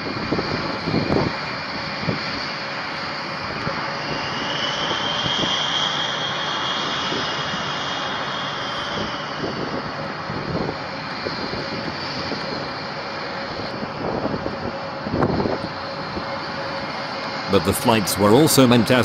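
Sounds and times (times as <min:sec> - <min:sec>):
wind buffeting microphone: 0:00.0 - 0:02.5, 0:08.9 - 0:17.0
high engine whine: 0:00.0 - 0:19.0
jet engines roaring: 0:00.0 - 0:19.0.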